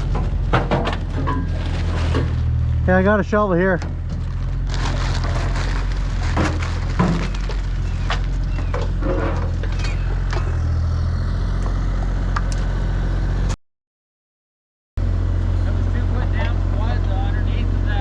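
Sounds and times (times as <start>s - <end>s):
scraping and knocking in stony ground: 0.0s - 2.8s, 3.8s - 10.6s
digging machine engine running: 0.0s - 13.5s.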